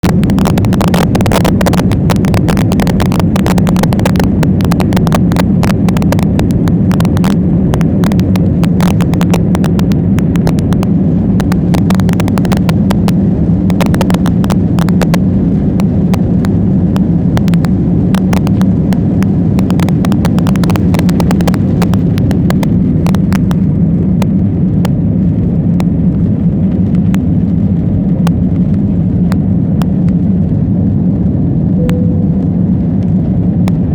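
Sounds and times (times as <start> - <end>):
jet airliner taking off: 0.0 - 33.9.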